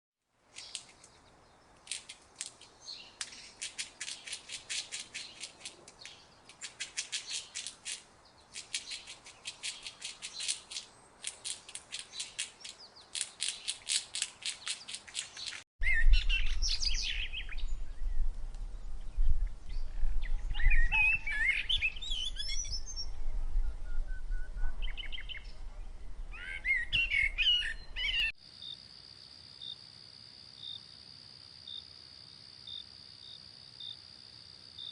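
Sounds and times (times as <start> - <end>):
warbling bird calls: 24.2 - 28.3.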